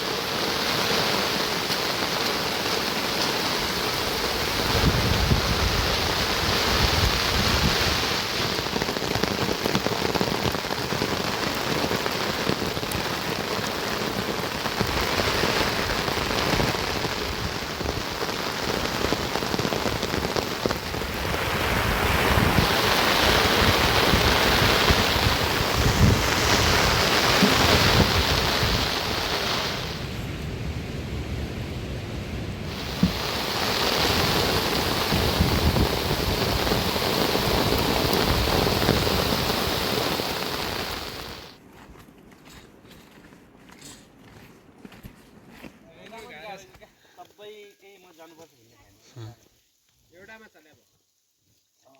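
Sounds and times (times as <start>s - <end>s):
heavy rain pouring: 0.0s - 41.6s.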